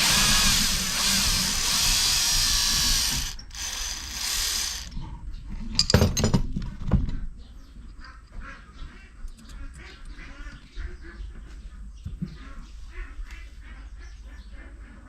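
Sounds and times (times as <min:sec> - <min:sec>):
ratchet wrench ratcheting: 0:00.0 - 0:05.0.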